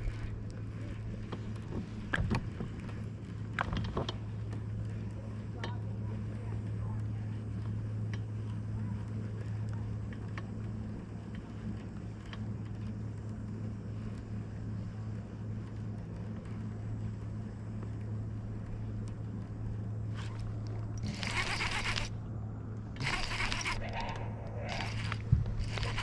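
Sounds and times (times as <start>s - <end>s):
boat motor humming: 0.0s - 26.0s
faint ticks: 6.5s - 22.1s.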